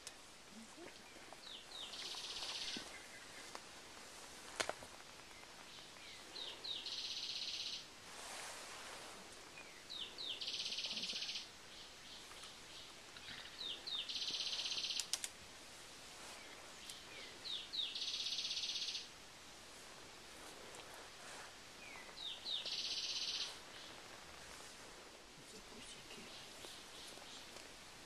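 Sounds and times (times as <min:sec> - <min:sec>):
bird singing with trill: 0:06.4 - 0:07.8, 0:09.8 - 0:11.9, 0:13.2 - 0:15.1, 0:16.9 - 0:19.1, 0:21.9 - 0:23.5.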